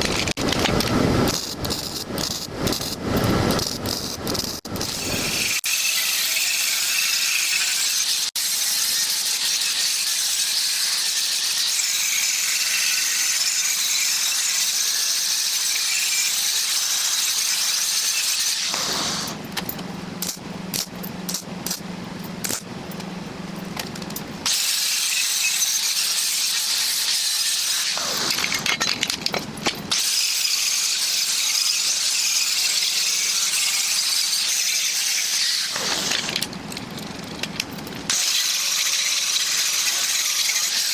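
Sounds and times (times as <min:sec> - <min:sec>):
angle grinder grinding steel: 0:38.1 - 0:40.9.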